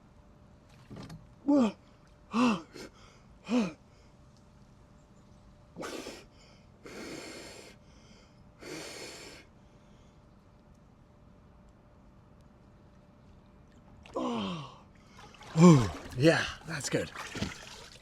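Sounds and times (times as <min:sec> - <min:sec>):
person breathing hard: 0:05.8 - 0:10.2.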